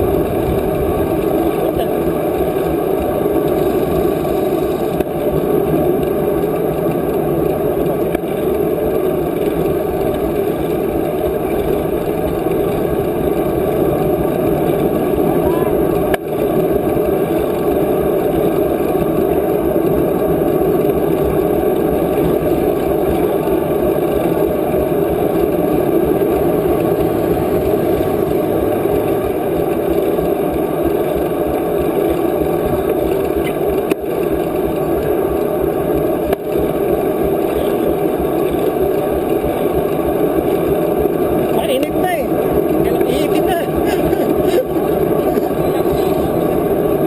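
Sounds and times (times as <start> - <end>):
wind rush on microphone: 0.0 - 7.6.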